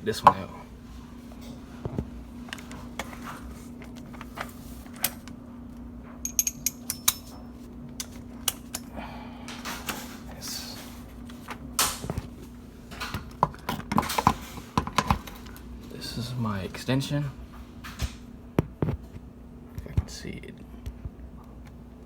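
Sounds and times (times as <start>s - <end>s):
steady low hum: 0.0s - 22.0s
clicks and knocks of tools: 6.2s - 8.9s.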